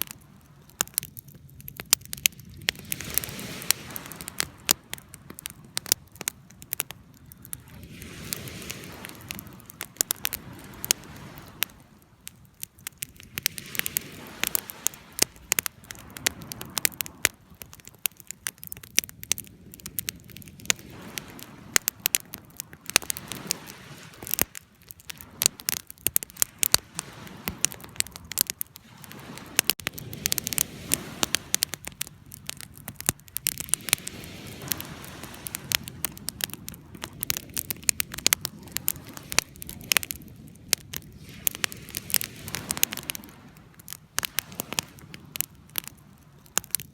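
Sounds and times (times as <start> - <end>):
wood fire crackling and popping: 0.0 - 46.9
flames hissing: 7.4 - 11.7, 18.7 - 46.9.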